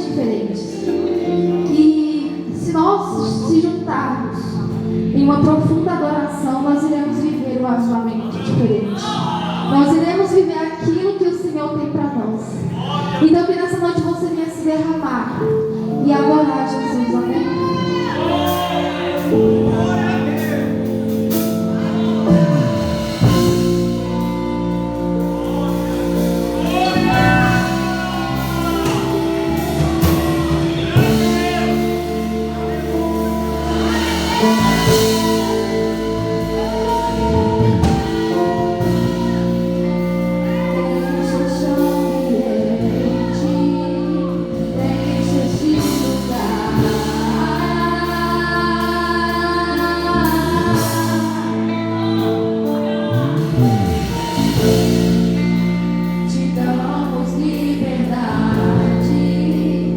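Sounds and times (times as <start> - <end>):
gospel worship singing: 0.0 - 10.9, 11.6 - 59.9
long held chords: 15.4 - 59.9.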